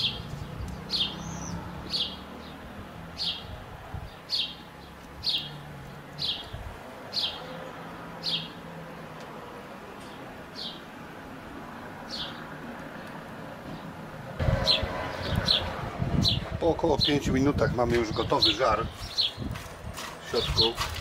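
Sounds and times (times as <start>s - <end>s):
small songbird calling: 0.0s - 2.6s, 18.1s - 19.5s.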